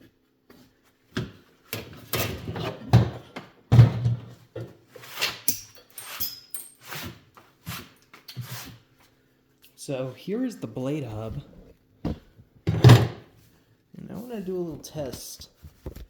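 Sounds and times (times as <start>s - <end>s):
metallic ring: 5.5s - 6.9s.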